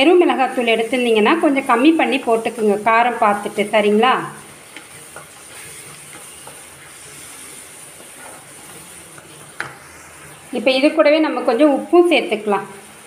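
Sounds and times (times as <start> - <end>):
masala sizzling in a wok: 0.0 - 13.0
wooden spatula scraping and tapping: 4.4 - 9.9.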